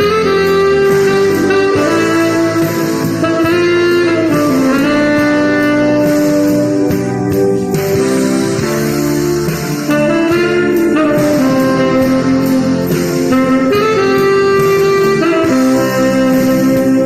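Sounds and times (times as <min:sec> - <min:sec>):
guitar accompaniment: 0:00.0 - 0:17.0
saxophone playing jazzy melody: 0:00.0 - 0:17.0.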